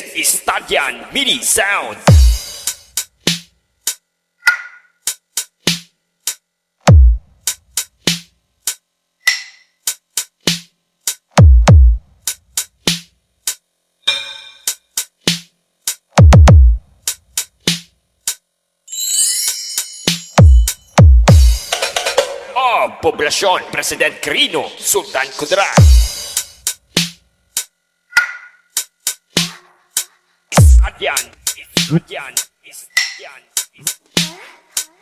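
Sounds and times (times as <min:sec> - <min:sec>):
deep bass kick drums: 0:02.1 - 0:02.4, 0:06.9 - 0:07.3, 0:11.4 - 0:12.1, 0:16.2 - 0:16.8, 0:20.4 - 0:21.6, 0:25.8 - 0:26.2, 0:30.6 - 0:31.0.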